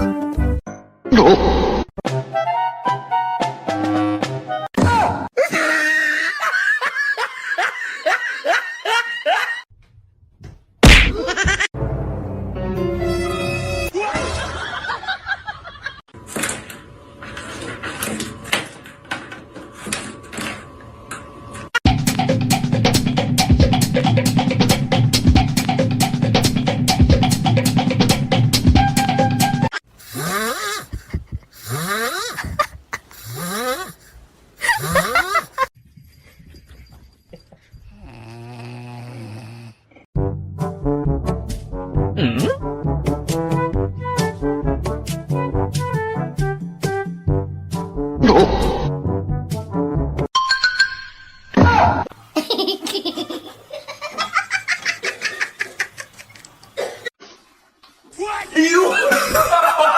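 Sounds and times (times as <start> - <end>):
music: 0.0 - 1.1, 2.0 - 4.7, 11.8 - 14.0, 21.8 - 29.7, 40.2 - 50.3
person laughing hard: 5.4 - 9.6, 11.1 - 11.8, 13.9 - 16.0, 30.1 - 35.7, 58.9 - 59.9.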